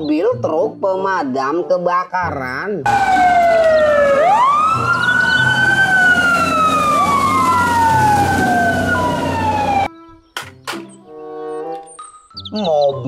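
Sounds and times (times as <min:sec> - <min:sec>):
fire engine sirens wailing: 0:02.9 - 0:09.9
truck engines rumbling: 0:02.9 - 0:09.9.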